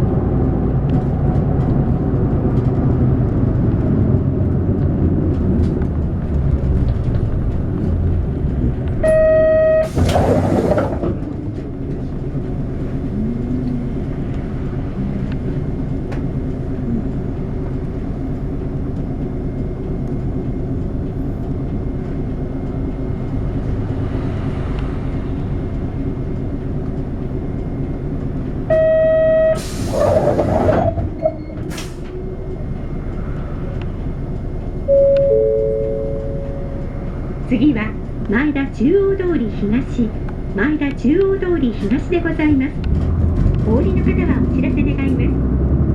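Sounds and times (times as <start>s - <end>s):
bus diesel engine idling: 0.0s - 45.9s
pneumatic door air hiss: 29.6s - 30.9s
click: 33.7s - 37.0s
electronic door chime: 34.9s - 37.1s.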